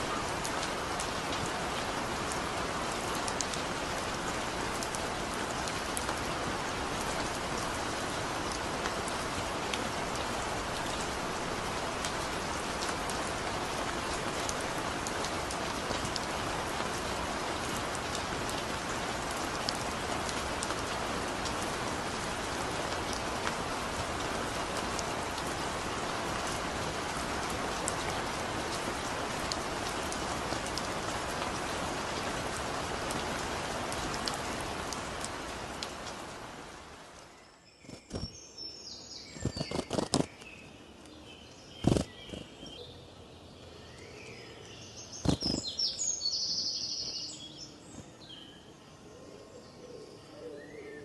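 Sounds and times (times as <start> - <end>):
raindrops ticking: 0.0 - 36.3
heavy rain falling: 0.0 - 37.4.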